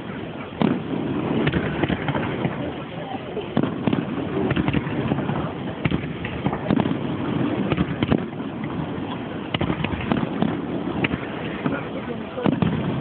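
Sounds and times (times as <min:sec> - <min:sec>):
fireworks pops and crackles: 0:00.0 - 0:13.0
loud fireworks bangs: 0:00.0 - 0:13.0.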